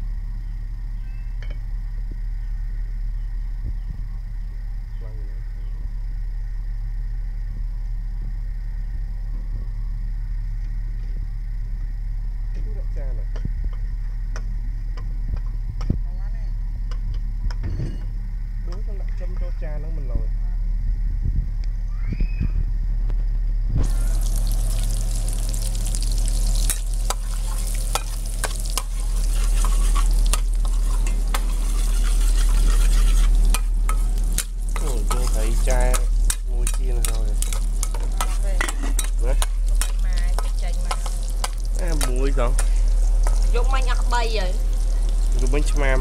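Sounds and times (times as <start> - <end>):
utensil scraping a wok: 23.8 - 45.7
garlic sizzling in hot oil: 23.8 - 46.0.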